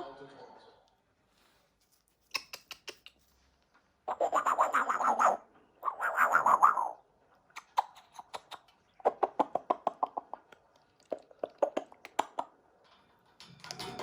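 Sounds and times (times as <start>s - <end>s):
parrot clicking beak: 2.3s - 3.2s, 4.1s - 12.6s.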